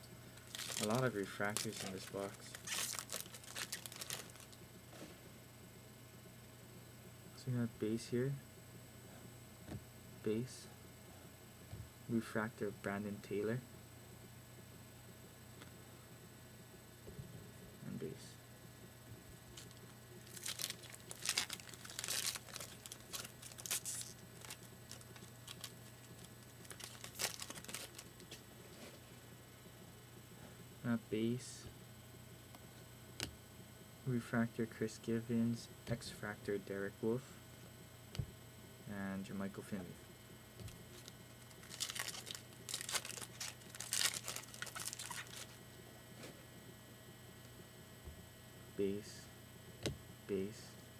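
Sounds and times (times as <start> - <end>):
foil wrapper crinkling: 0.3 - 4.6, 19.5 - 28.3, 40.6 - 45.6.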